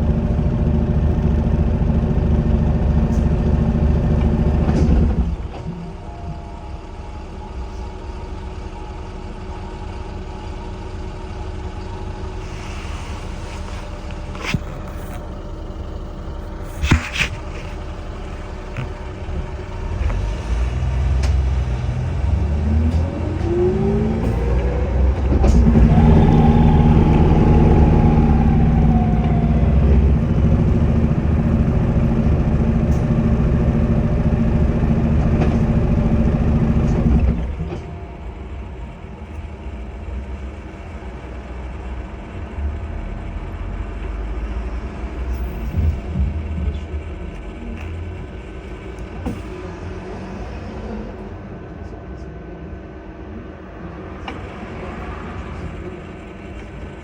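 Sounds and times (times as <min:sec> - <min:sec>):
bus diesel engine: 0:00.0 - 0:57.0
rising whine: 0:17.5 - 0:33.8
turbo whistling: 0:25.8 - 0:30.2.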